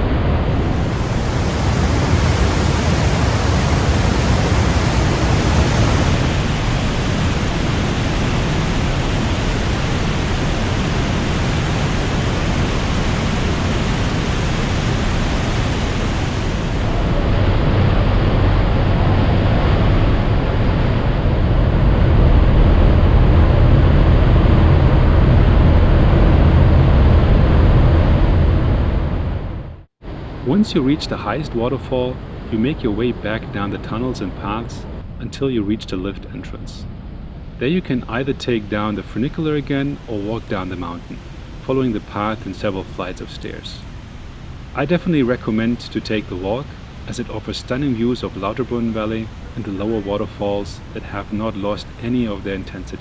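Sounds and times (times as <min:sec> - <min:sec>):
waterfall rushing: 0:00.5 - 0:06.6.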